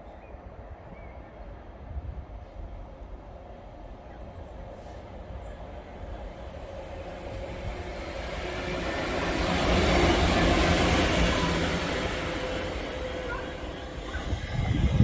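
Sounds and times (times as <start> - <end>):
train rumbling on track: 0.4 - 15.0.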